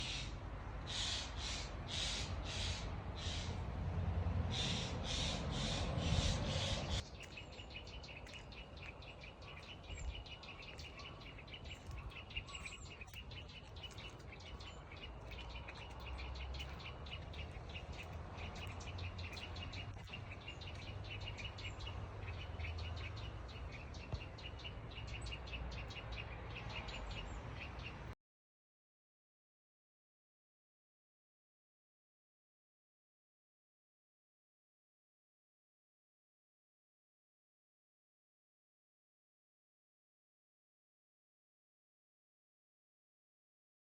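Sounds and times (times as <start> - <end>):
jay giving harsh rasping calls: 0.9 - 3.6, 4.5 - 7.0.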